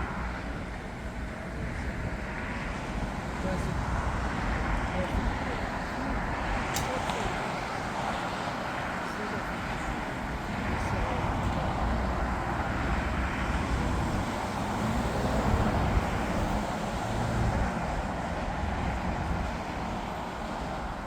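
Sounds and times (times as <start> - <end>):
jet engines rumbling: 0.0 - 21.0.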